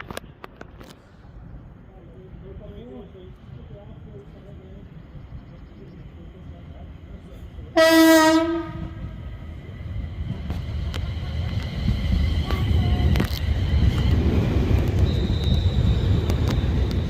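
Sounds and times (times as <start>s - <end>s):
train rumble: 0.0s - 17.0s
train horn blast: 7.8s - 9.1s.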